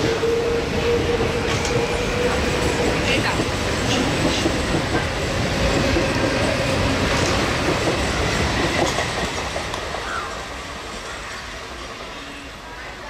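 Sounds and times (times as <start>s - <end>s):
train wheels clattering over rail joints: 1.4s - 10.2s.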